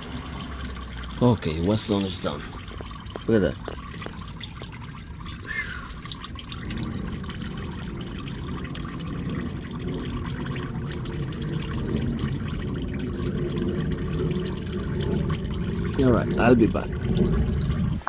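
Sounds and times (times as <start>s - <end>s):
oil pouring into a pan: 0.0s - 18.0s.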